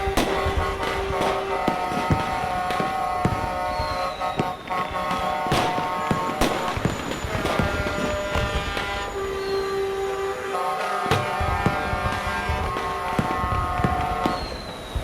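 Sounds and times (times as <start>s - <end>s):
sharp cracks or bangs: 0.0s - 9.7s, 10.8s - 15.0s
truck air horns blaring: 0.0s - 14.8s.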